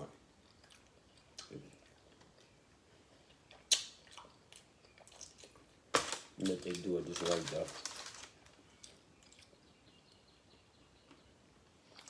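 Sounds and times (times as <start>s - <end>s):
person chewing: 3.1s - 5.8s
mouth clicks and smacks: 3.5s - 4.4s.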